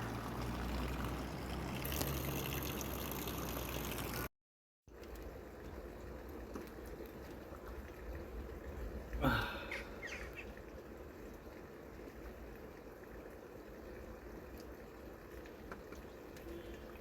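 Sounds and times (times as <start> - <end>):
water splash: 0.0 - 4.3
water trickling and pouring: 0.0 - 4.3, 5.0 - 17.0.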